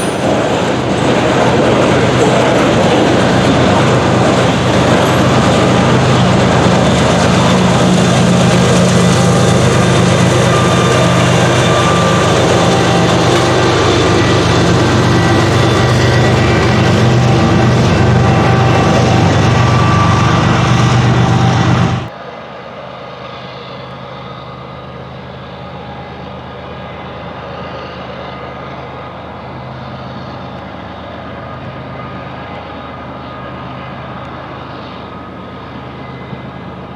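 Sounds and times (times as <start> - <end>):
diesel locomotive engine: 0.0 - 36.9
wheel and rail noise: 0.0 - 36.9.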